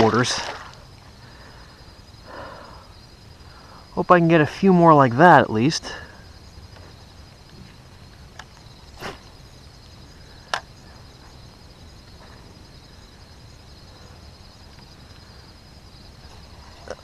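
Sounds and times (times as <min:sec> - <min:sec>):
insect chorus trilling: 0:00.0 - 0:17.0.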